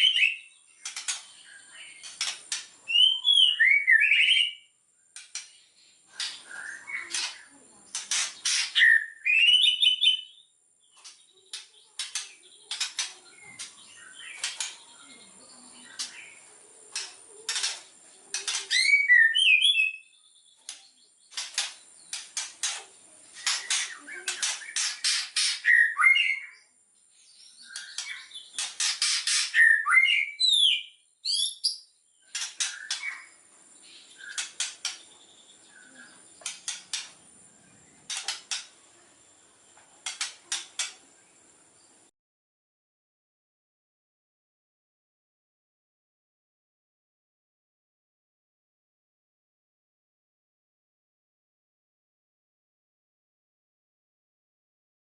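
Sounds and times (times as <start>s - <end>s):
bird song with clicks and whistles: 0.0s - 22.8s, 23.4s - 37.2s.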